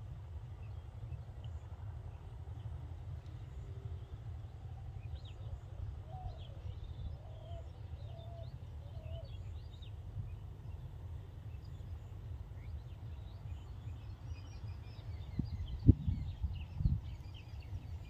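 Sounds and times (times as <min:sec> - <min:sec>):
low outdoor rumble: 0:00.0 - 0:18.0
wild birds chirping: 0:00.3 - 0:18.0
lower bird calls: 0:03.4 - 0:10.9.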